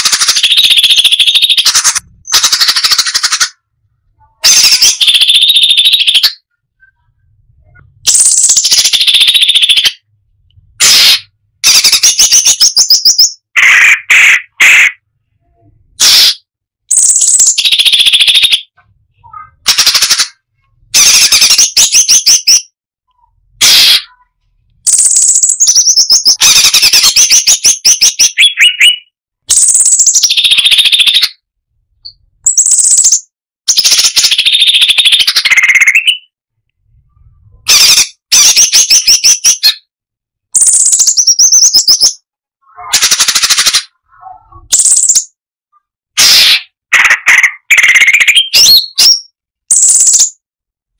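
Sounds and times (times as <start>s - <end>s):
bulbul singing rapid repeated notes: 0.0s - 3.6s, 4.5s - 7.0s, 7.7s - 10.1s, 10.8s - 13.5s, 16.0s - 22.7s, 24.8s - 31.4s, 32.0s - 36.3s, 37.8s - 39.9s, 40.6s - 42.3s, 44.6s - 45.4s, 47.0s - 50.4s.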